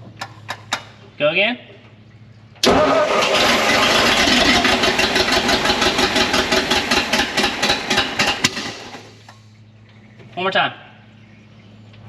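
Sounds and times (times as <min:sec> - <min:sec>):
engine cranking and running roughly: 0:02.6 - 0:09.3.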